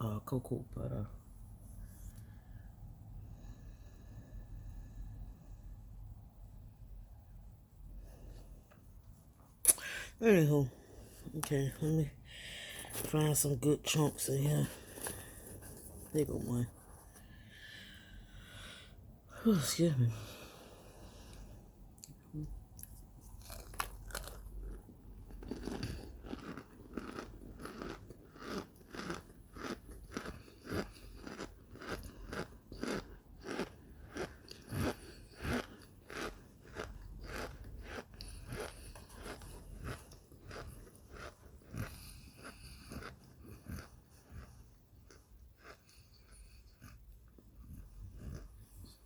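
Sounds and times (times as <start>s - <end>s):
person chewing crunchy food: 14.4s - 18.8s, 20.3s - 49.0s.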